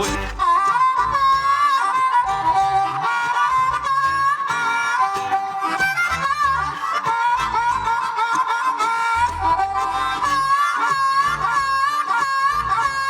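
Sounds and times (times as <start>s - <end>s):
low bass notes: 0.0s - 1.6s, 9.2s - 10.6s
bending lead melody: 0.0s - 13.0s
plucked strings: 0.0s - 13.0s.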